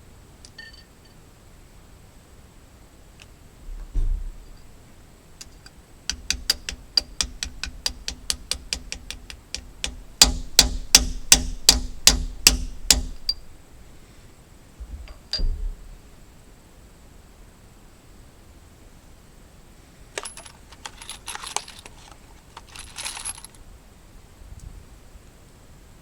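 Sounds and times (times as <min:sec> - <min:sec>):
hammer striking metal: 0:05.4 - 0:13.6.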